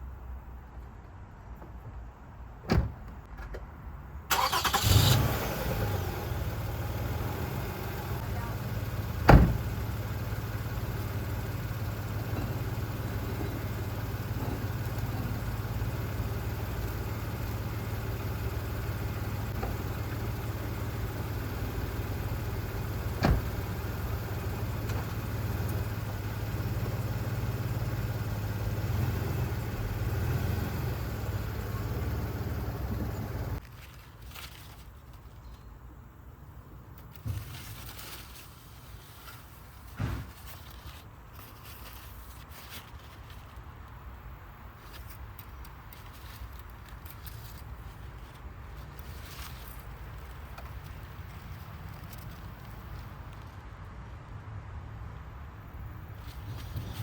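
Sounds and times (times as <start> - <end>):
car engine idling: 4.3 - 33.6.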